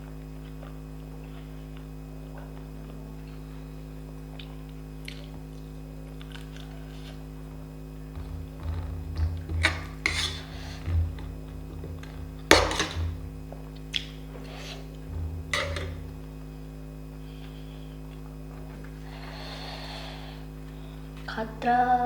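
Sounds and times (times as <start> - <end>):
steady low hum: 0.0 - 22.0
utensils knocking against plate: 8.2 - 13.4, 15.2 - 16.2.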